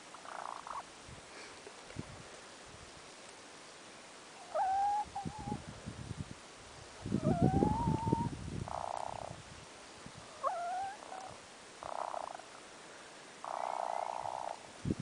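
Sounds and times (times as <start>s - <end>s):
hen squeaky calls and trills: 4.4s - 5.6s, 7.2s - 9.4s, 10.3s - 12.5s.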